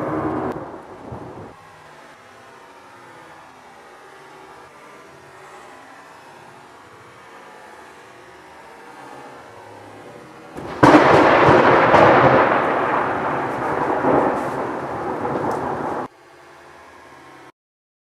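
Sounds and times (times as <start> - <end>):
thunderclap and rumbling thunder: 0.0 - 1.6, 10.5 - 16.1
faint rain hiss: 0.0 - 17.5.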